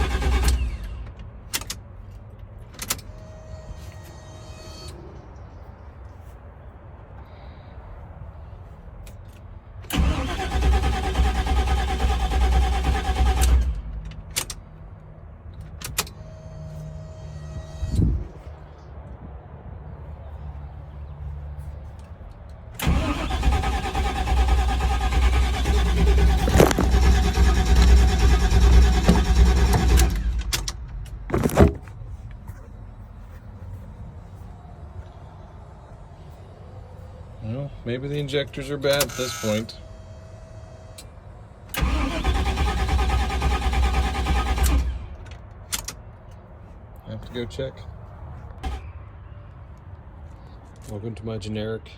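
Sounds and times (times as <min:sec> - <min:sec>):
truck engine cranking on starter: 0:00.0 - 0:01.8, 0:09.8 - 0:14.6, 0:22.8 - 0:31.9, 0:38.1 - 0:40.1, 0:41.7 - 0:46.0, 0:48.6 - 0:48.9.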